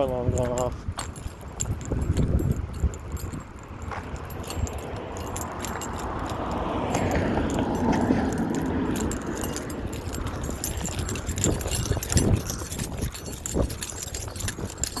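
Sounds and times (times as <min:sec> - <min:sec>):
road vehicle passing: 0:02.6 - 0:14.3.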